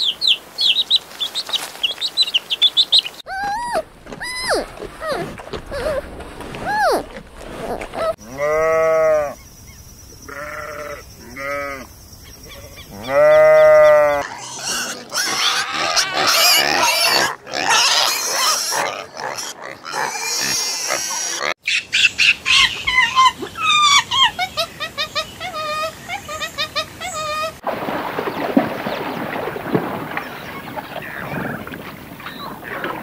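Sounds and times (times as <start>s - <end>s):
animal crying: 3.3s - 6.0s, 10.3s - 11.8s, 12.5s - 21.6s.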